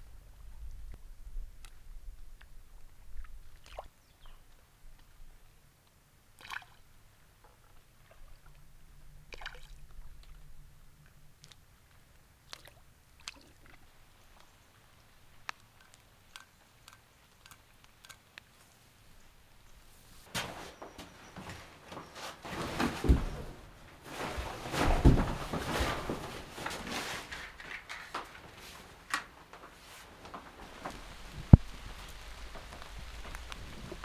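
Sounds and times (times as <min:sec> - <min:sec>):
clicks and knocks of handling: 0:15.4 - 0:18.8, 0:20.2 - 0:34.0.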